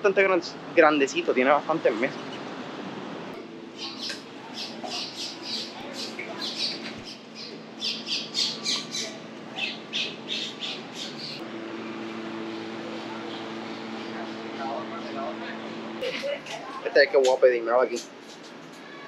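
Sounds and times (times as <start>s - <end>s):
steady low hum: 0.0s - 18.6s
birds squawking: 3.7s - 11.4s.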